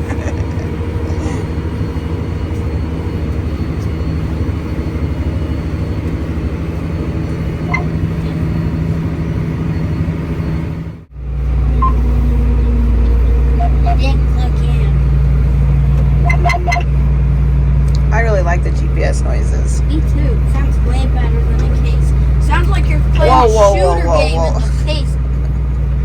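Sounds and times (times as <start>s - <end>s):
tractor engine running: 0.0s - 26.0s
faint beep: 7.6s - 8.3s, 11.8s - 12.0s, 13.6s - 14.1s, 16.2s - 16.9s.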